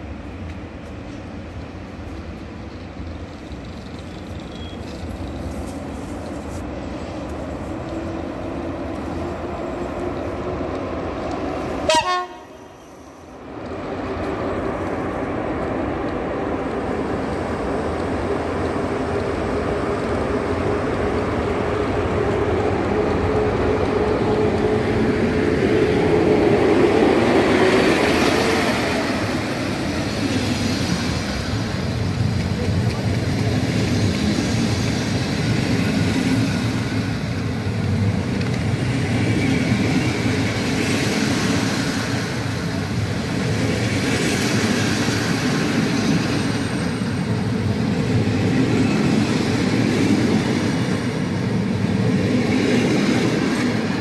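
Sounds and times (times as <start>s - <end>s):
electric train passing with whine: 0.0s - 54.0s.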